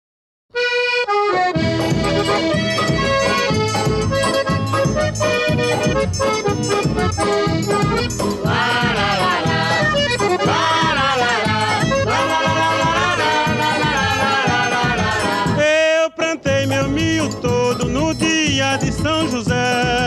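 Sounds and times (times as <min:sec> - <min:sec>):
accordion melody: 0:00.5 - 0:20.0
low drum and bass beat: 0:01.6 - 0:06.0.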